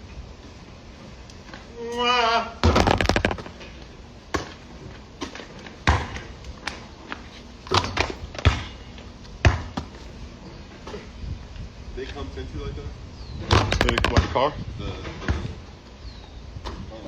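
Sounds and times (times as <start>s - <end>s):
basketball bouncing on a court: 13.8s - 14.2s.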